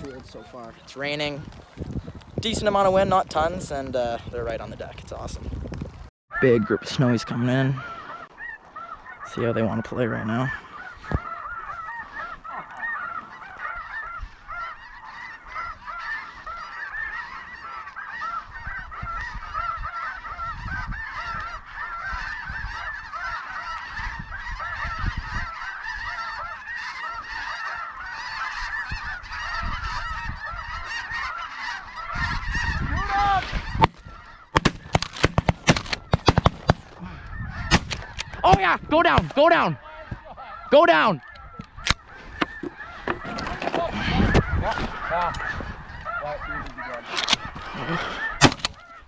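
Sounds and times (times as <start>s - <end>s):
flock of geese honking: 0.0s - 49.0s
shotgun blasts: 34.6s - 37.0s, 37.7s - 39.4s, 48.4s - 48.8s.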